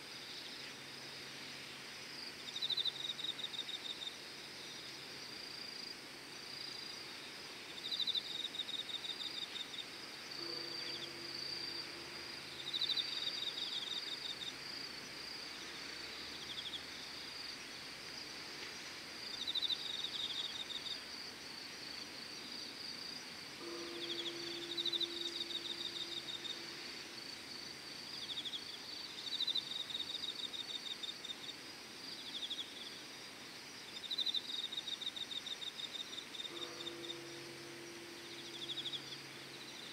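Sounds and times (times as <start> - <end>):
insect chirping: 0.0 - 39.9
faint low hum: 0.1 - 31.6, 36.0 - 39.9
high-pitched insect trill: 7.7 - 17.9, 18.8 - 33.0, 34.0 - 39.9.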